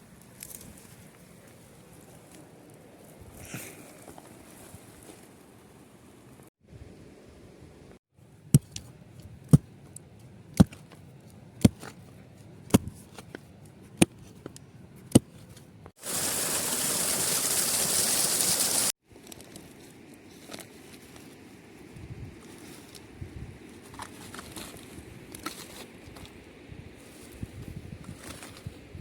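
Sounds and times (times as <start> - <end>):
loud steady hiss: 16.0 - 18.9.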